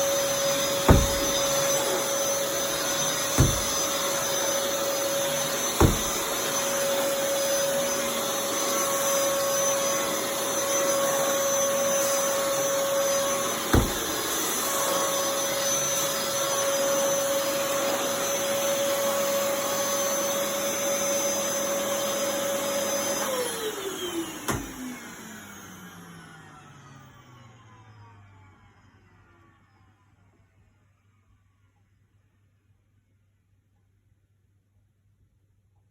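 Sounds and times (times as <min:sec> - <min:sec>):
vacuum cleaner running: 0:00.0 - 0:30.1
vacuum motor winding down: 0:00.0 - 0:30.1
sharp knocks: 0:00.8 - 0:01.5, 0:03.4 - 0:03.8, 0:05.8 - 0:06.3, 0:13.7 - 0:14.2.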